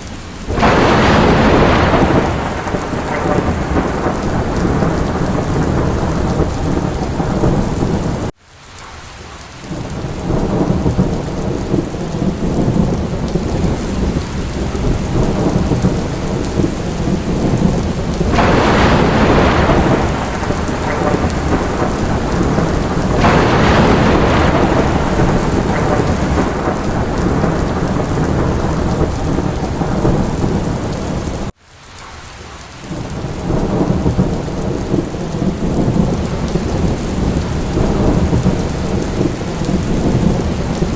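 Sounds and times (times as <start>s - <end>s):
heavy rain: 0.0s - 40.9s
low rolling thunder: 0.4s - 8.3s, 9.6s - 31.5s, 32.9s - 40.9s.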